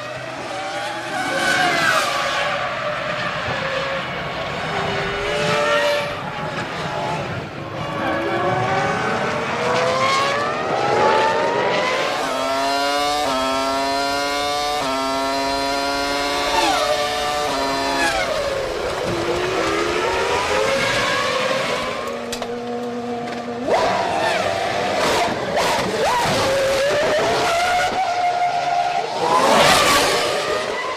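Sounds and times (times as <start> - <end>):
racing car engines accelerating: 0.0 - 30.9.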